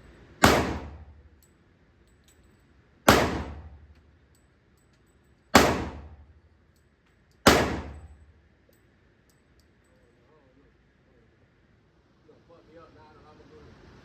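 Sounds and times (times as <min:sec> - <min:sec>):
gunshots with echo: 0:00.4 - 0:01.1, 0:03.1 - 0:03.7, 0:05.6 - 0:06.2, 0:07.5 - 0:08.1.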